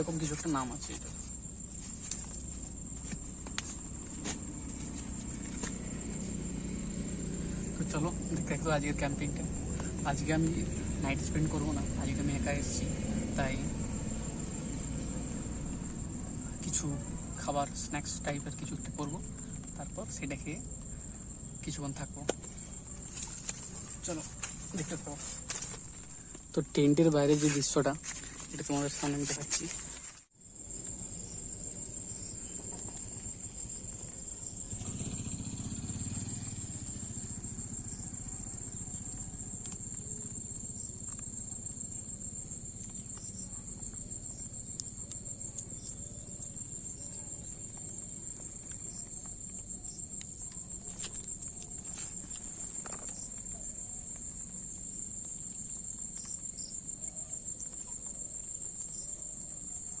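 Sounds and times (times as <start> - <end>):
crickets chirring: 0.0 - 60.0.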